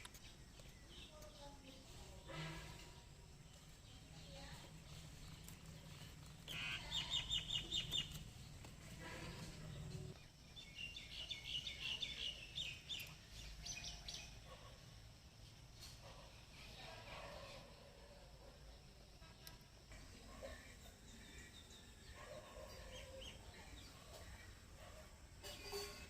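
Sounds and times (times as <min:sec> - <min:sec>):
bird chirping: 0:03.0 - 0:14.7.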